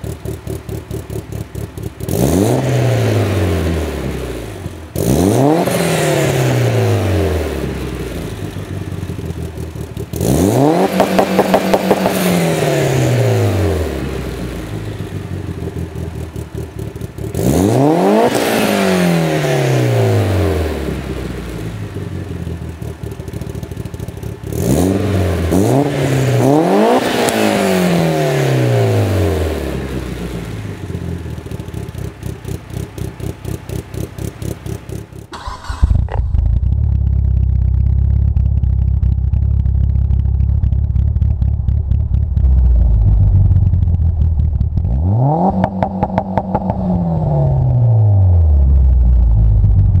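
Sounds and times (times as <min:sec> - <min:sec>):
car engine lumpy idle: 0:00.0 - 0:02.2, 0:07.6 - 0:10.3, 0:13.9 - 0:17.4, 0:20.6 - 0:25.6, 0:29.7 - 0:45.0, 0:47.6 - 0:50.0
engine revving to limiter crackling: 0:04.9 - 0:50.0.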